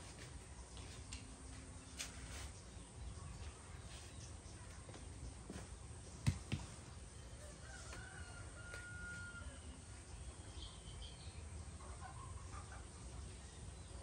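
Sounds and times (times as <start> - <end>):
rooster crowing: 7.4 - 9.8.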